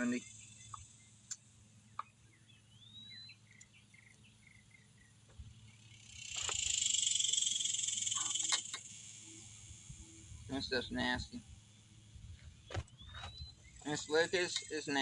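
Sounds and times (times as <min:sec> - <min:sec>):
bird chirps: 0:00.0 - 0:15.0
insect buzzing: 0:00.0 - 0:15.0.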